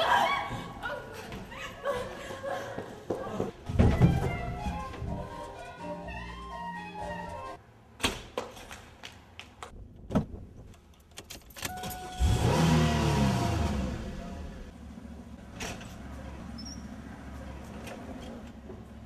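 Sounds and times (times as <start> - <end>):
car engine starting and revving: 12.1 - 17.6.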